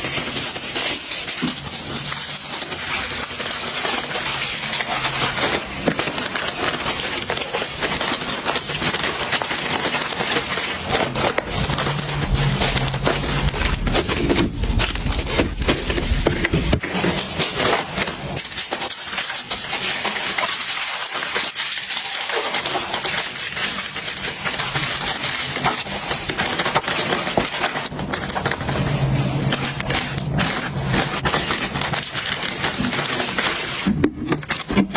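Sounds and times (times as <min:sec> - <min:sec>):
small hard items clattering: 0:00.0 - 0:34.9
low rumble: 0:11.4 - 0:16.8.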